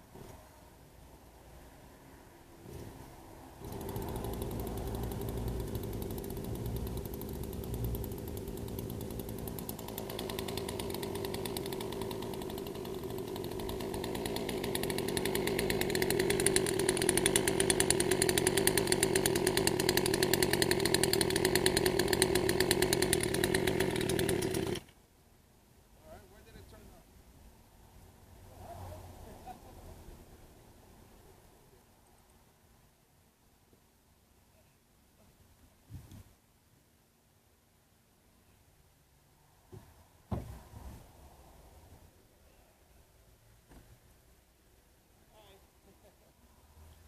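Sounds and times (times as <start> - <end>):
chainsaw engine running: 3.6 - 24.9.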